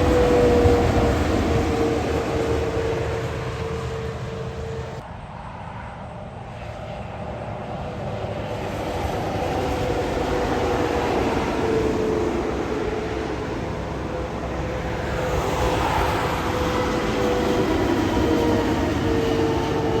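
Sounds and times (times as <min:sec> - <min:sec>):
heavy truck passing: 0:00.0 - 0:05.0, 0:08.6 - 0:20.0.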